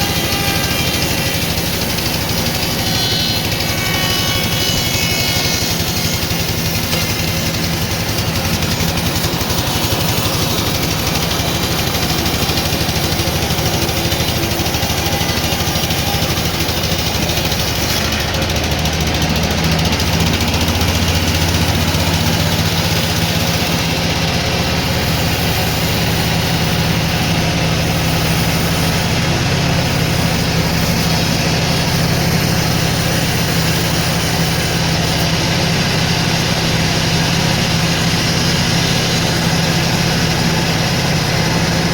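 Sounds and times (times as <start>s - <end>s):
sawmill machinery droning: 0.0s - 41.9s.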